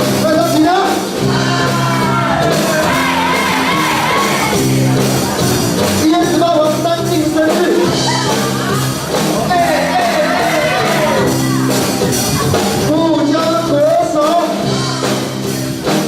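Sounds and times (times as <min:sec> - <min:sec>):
rock song with singing: 0:00.0 - 0:16.0
shouting: 0:01.4 - 0:04.6, 0:09.5 - 0:11.4.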